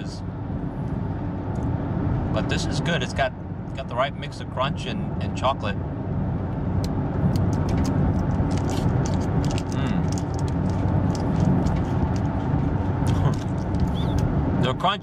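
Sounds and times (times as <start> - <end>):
car engine rumble inside cabin: 0.0 - 15.0
crunchy candy being chewed: 7.3 - 14.2.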